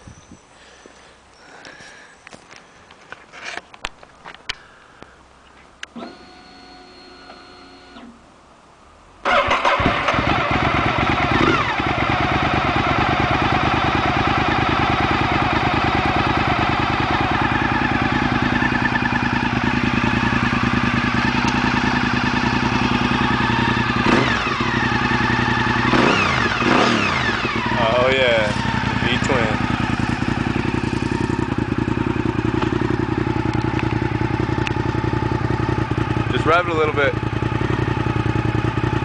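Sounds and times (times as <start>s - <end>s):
motorcycle engine idling: 9.3s - 39.0s.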